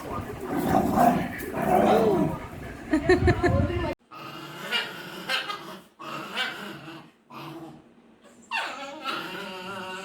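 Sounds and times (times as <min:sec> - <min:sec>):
dogs growling and whining: 0:00.0 - 0:02.8, 0:04.1 - 0:10.0.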